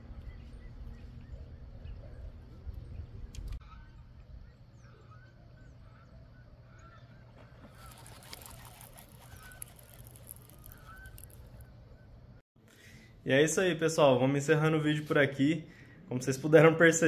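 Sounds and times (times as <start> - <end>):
wind rumble on microphone: 0.0 - 4.5
faint short bird calls: 3.6 - 12.2
crackling hiss: 7.8 - 11.5.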